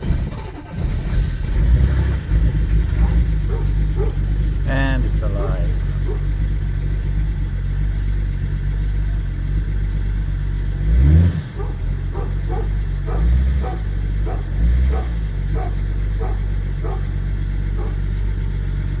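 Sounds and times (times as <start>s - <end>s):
diesel engine idling and revving: 0.0s - 19.0s
dogs barking: 2.6s - 7.1s, 10.9s - 19.0s.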